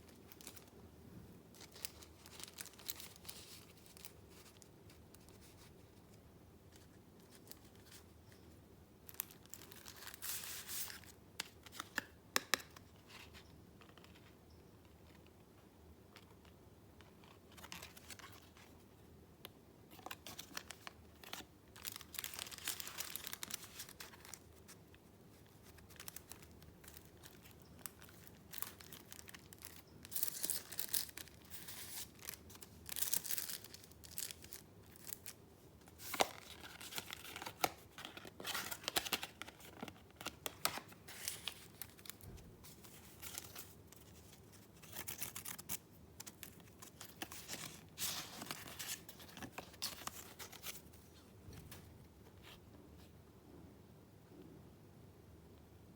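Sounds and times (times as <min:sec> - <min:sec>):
paper rustling and crinkling: 0:19.9 - 0:52.6.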